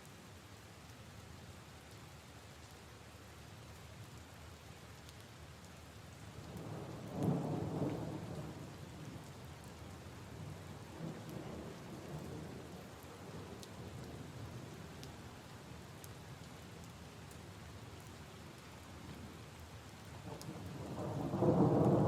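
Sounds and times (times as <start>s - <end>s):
rain pattering on puddles: 0.0s - 22.0s
thunder rumbling: 20.3s - 22.0s.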